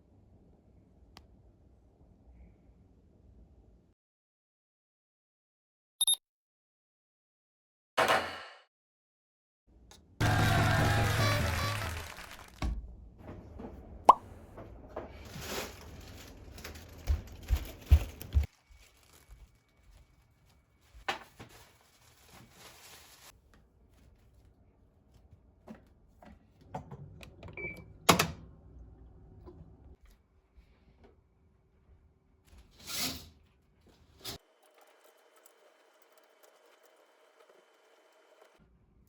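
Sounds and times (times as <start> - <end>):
rustling: 15.2 - 25.3.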